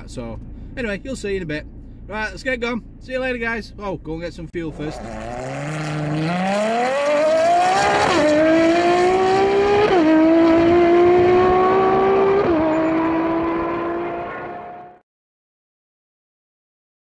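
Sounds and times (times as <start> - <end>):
vehicle engine accelerating: 4.7 - 15.0.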